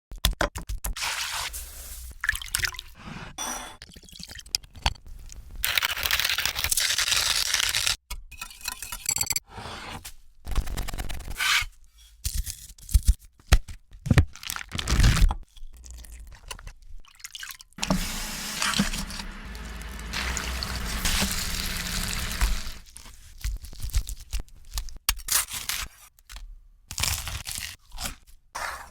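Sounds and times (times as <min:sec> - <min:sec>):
liquid pouring and dripping: 0:15.8 - 0:22.8.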